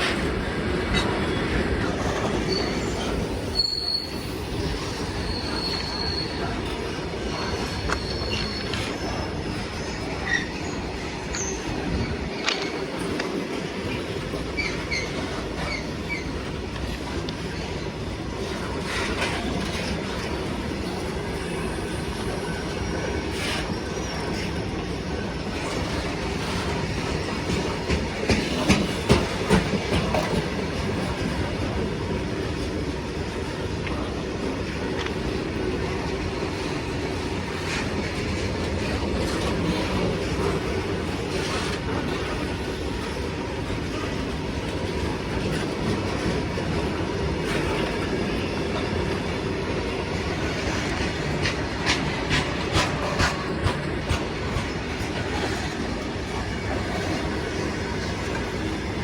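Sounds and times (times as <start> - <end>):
train wagons rumbling on rails: 0.0 - 59.0
high wheel squeaks: 2.2 - 12.8.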